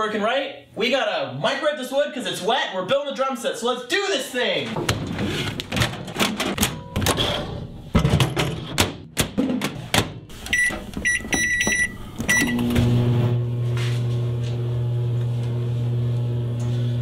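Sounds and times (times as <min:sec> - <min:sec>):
knocks and clatter of handling: 0:04.7 - 0:10.2
microwave oven humming: 0:10.4 - 0:17.0
short high keypad beeps: 0:10.5 - 0:12.6.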